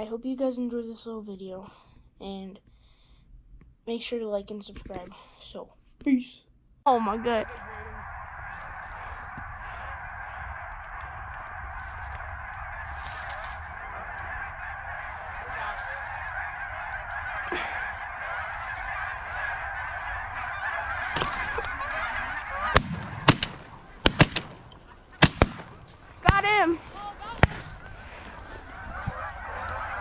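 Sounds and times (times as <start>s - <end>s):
geese honking: 6.9s - 30.0s
shotgun blast: 22.7s - 24.6s, 25.2s - 26.4s.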